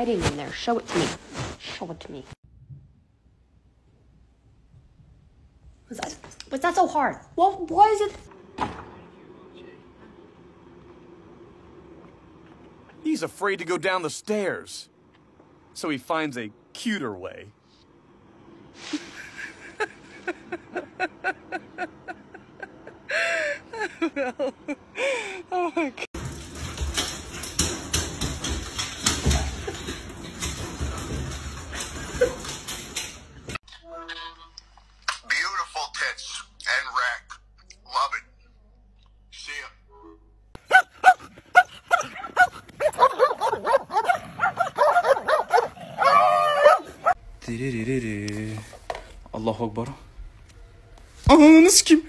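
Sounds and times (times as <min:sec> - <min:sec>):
dogs yapping and whining: 0:40.6 - 0:47.2.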